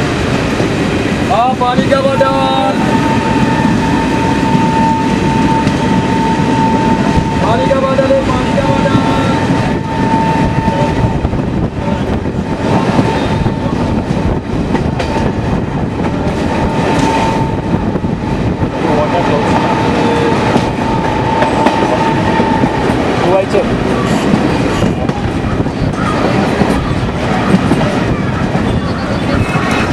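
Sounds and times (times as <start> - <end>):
train rumble inside coach: 0.0 - 29.9
steady high tone: 1.9 - 13.8
wheels clacking over rail joints: 18.9 - 29.9.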